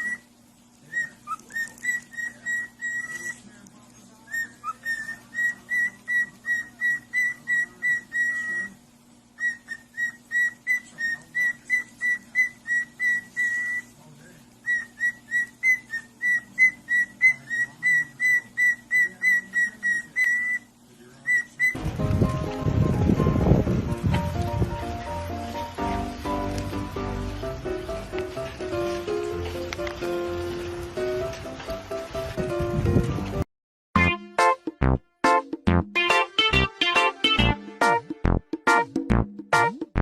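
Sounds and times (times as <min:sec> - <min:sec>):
parrot whistling: 0:00.0 - 0:00.3, 0:00.9 - 0:03.4, 0:04.3 - 0:08.8, 0:09.4 - 0:13.9, 0:14.6 - 0:22.4.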